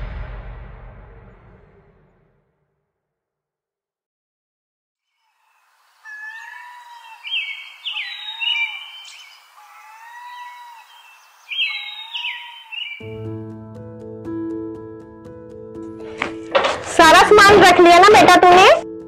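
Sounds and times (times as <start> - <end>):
steady outdoor hiss: 5.2 - 13.0
birds calling and singing: 5.3 - 13.1.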